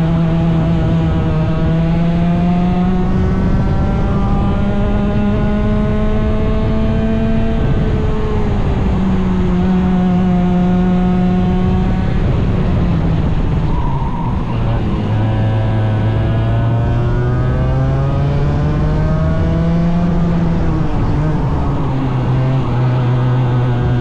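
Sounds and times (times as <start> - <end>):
racing engine at high revs: 0.0 - 24.0
steady rushing noise: 0.0 - 24.0.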